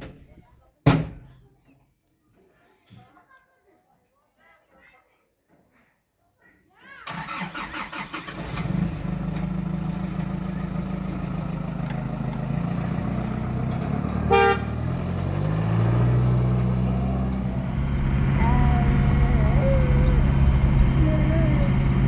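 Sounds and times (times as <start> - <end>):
vehicle engine starting and running: 7.1 - 22.0
short horn toot: 14.2 - 14.8.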